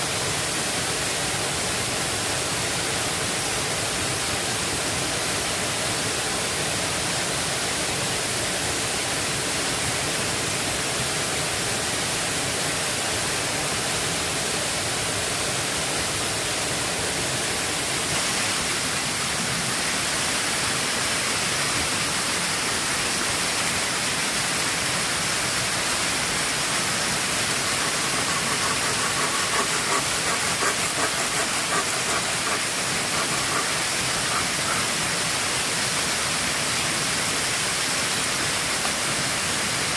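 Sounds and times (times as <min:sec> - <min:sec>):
quick ticks: 0:27.6 - 0:34.9.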